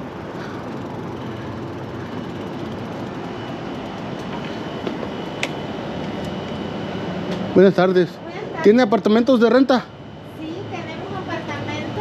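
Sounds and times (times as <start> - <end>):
electric motor whine: 0.0 - 7.6
bicycle rolling and wind noise: 0.0 - 9.6.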